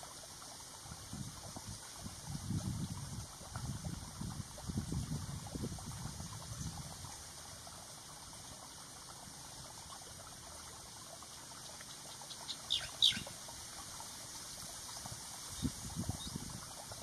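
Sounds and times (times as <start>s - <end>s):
faint steady hiss: 0.0s - 17.0s
high bird calls: 12.3s - 13.3s.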